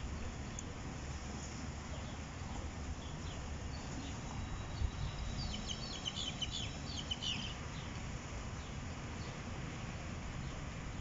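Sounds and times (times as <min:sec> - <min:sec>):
bird chirping: 0:03.0 - 0:08.0.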